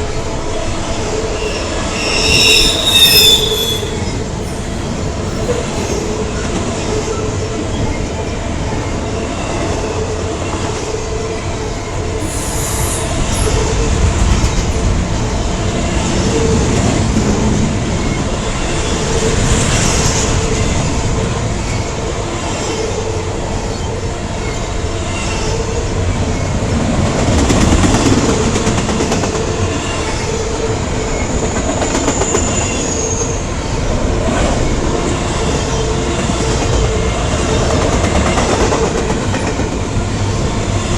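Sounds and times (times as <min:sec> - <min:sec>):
train wheels rumbling on rail: 0:00.0 - 0:40.9
high-pitched wheel squeals: 0:01.4 - 0:06.2, 0:12.2 - 0:13.6
clickety-clack over rail joints: 0:13.2 - 0:40.9.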